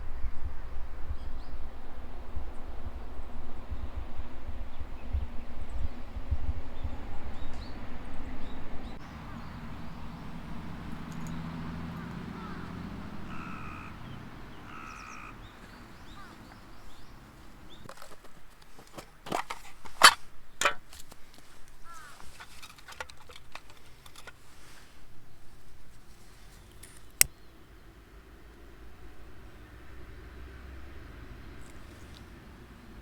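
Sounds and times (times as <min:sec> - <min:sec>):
short bird calls: 0:09.0 - 0:17.9.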